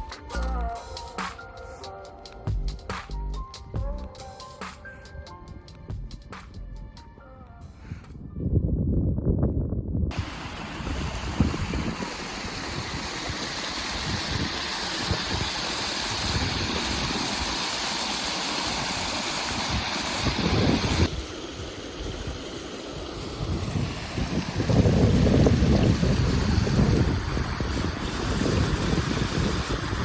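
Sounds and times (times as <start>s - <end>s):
wind gusting on microphone: 8.1s - 17.7s, 18.7s - 30.0s
rushing stream water: 10.1s - 30.0s.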